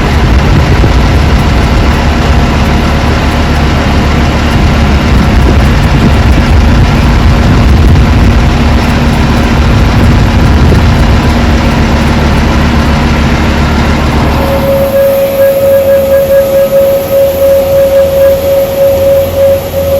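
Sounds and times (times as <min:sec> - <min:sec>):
aircraft engines roaring: 0:00.0 - 0:19.9.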